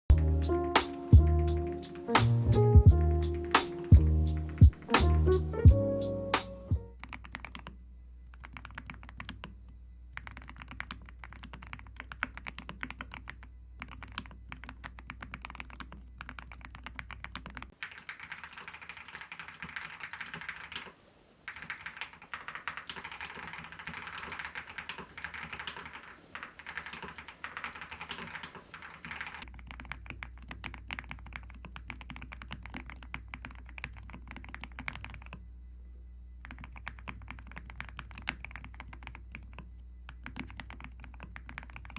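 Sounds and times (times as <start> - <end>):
mechanical keyboard typing: 10.2 - 29.5, 36.4 - 39.6.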